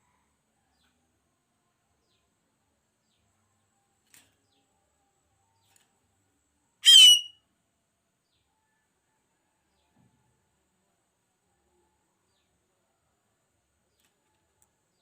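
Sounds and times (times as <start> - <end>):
bird harsh call: 6.8 - 7.4.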